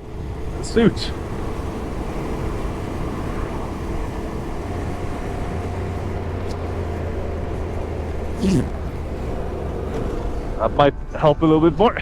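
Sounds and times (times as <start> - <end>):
wind and road noise: 0.0 - 12.0.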